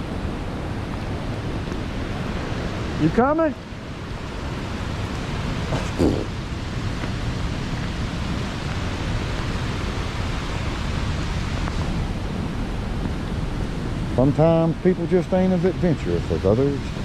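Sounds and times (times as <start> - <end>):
river rushing over falls: 0.0 - 17.0.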